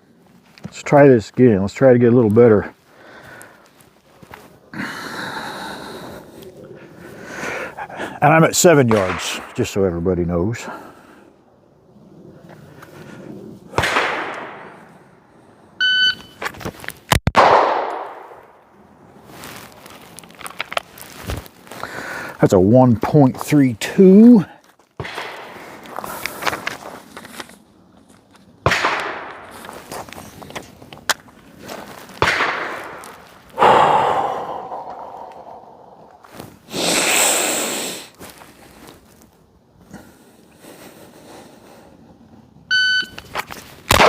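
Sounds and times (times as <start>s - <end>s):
pistol shot: 8.9s - 9.6s, 13.8s - 14.8s, 17.2s - 18.6s, 25.0s - 25.6s, 28.6s - 29.5s, 32.2s - 33.1s
gunshot with echoing tail: 8.9s - 9.7s, 13.7s - 14.8s, 17.4s - 18.6s, 25.0s - 25.6s, 28.6s - 29.5s, 32.2s - 33.0s
shot timer beep: 15.8s - 16.4s, 42.7s - 43.2s.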